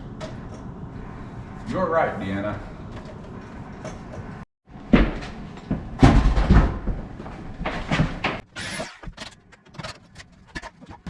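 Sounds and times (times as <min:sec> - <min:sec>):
loud knocks and scrapes: 0:04.0 - 0:11.0.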